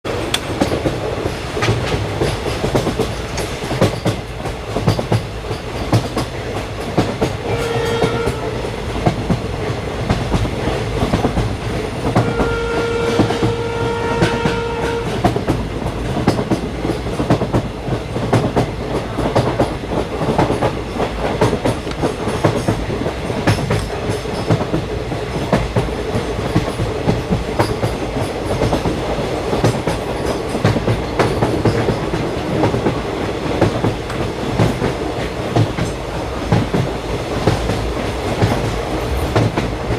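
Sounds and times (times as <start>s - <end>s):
train wheels clattering over rails: 0.1s - 39.9s
train horn blast: 7.4s - 8.8s, 12.1s - 15.3s.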